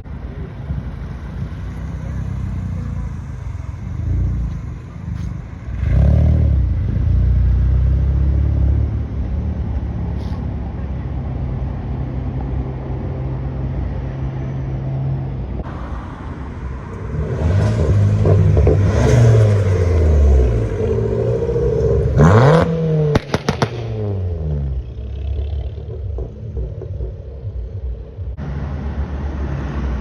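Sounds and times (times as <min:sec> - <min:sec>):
engine revving: 0:01.8 - 0:09.9, 0:16.8 - 0:30.0
car engine running: 0:15.6 - 0:30.0
exhaust cracks: 0:16.8 - 0:28.4
car passing by: 0:28.4 - 0:30.0.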